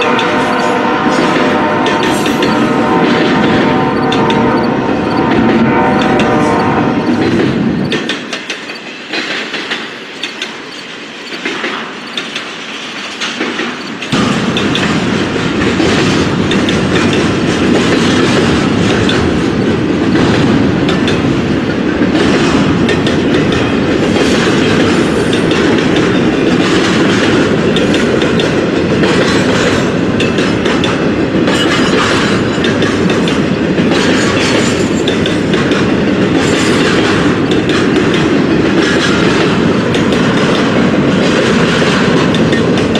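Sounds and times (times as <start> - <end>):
train wheels clattering over rails: 0.0 - 42.9.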